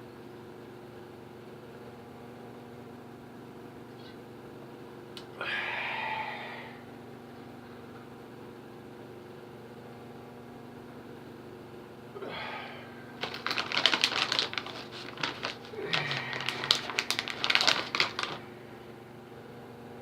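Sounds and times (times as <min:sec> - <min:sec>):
steady low hum: 0:00.0 - 0:20.0
rapid crackling and clicking: 0:13.2 - 0:18.4.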